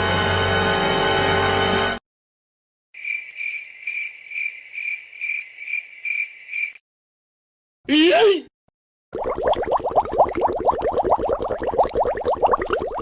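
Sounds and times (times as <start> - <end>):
crickets chirping: 3.0 - 6.8.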